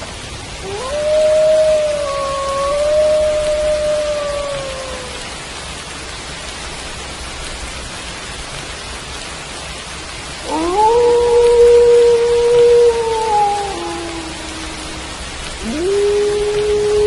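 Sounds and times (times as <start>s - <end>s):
steady rain: 0.0s - 17.0s
wolf howling: 0.6s - 5.3s, 10.4s - 17.0s.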